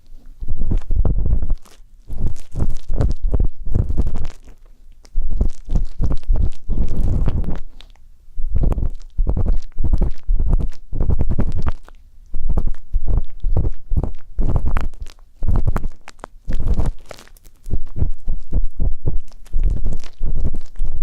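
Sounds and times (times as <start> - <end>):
ear pick scraping: 8.5 - 21.0.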